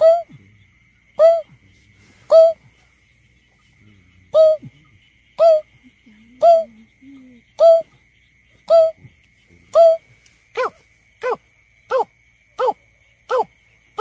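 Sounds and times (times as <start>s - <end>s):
bird hooting calls: 0.0s - 0.4s, 1.2s - 1.6s, 2.3s - 2.6s, 4.3s - 4.8s, 5.4s - 5.7s, 6.3s - 7.9s, 8.6s - 10.0s.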